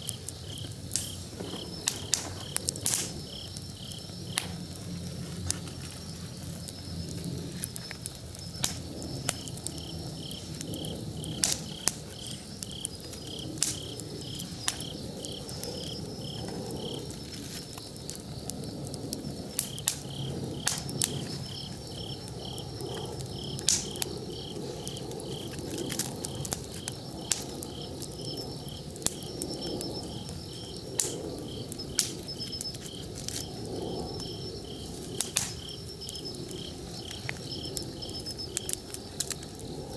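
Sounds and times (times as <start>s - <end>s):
campfire crackling and popping: 0.0s - 39.9s
insect chirping: 0.0s - 39.9s.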